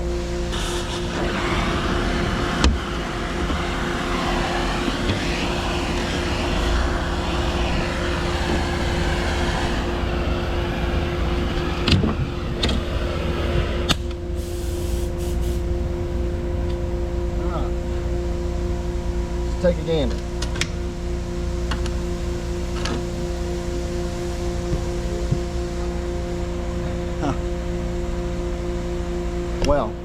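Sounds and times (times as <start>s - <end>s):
machine humming: 0.0s - 14.5s
broad hiss: 0.3s - 12.9s, 14.3s - 15.6s.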